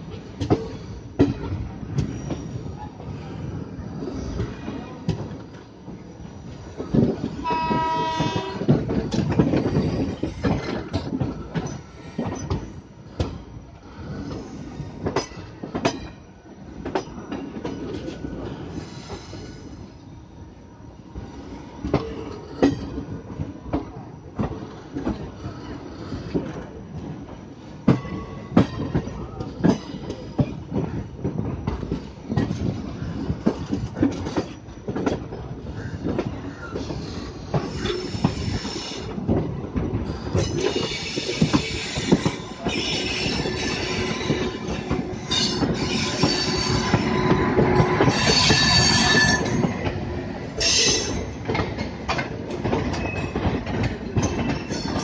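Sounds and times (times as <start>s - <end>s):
train rumbling over rail joints: 0.0s - 55.0s
train horn: 7.4s - 8.8s.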